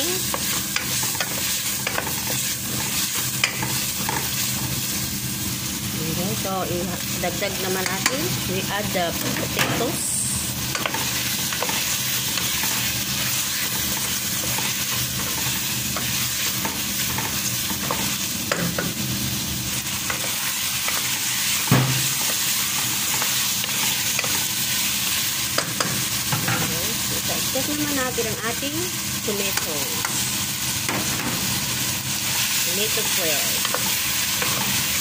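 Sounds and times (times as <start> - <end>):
food sizzling in hot oil: 0.0 - 35.0.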